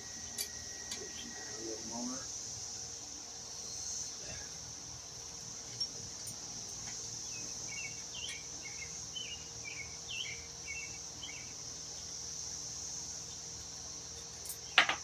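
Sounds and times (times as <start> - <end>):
insects droning: 0.0 - 15.0
bird chirping: 7.2 - 12.1.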